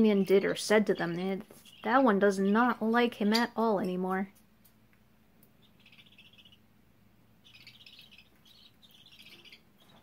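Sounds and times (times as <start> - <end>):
budgerigars chirping: 0.1 - 3.4, 5.6 - 6.7, 7.4 - 10.0.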